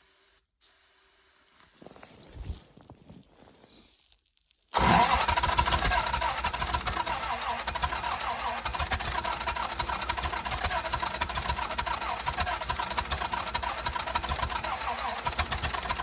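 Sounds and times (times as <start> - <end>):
welder engine running: 4.8 - 16.0.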